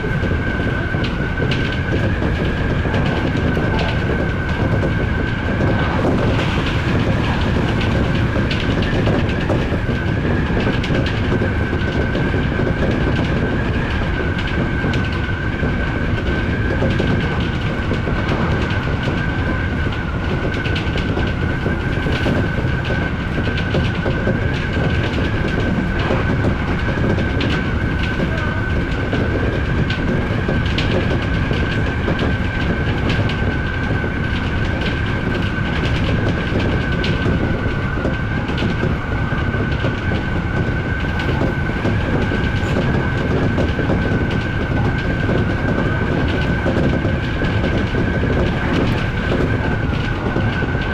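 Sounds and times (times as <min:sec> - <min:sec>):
train wheels rumbling on rail: 0:00.0 - 0:50.9
wheels clicking over rail joints: 0:00.0 - 0:50.9
high whine: 0:01.2 - 0:11.7.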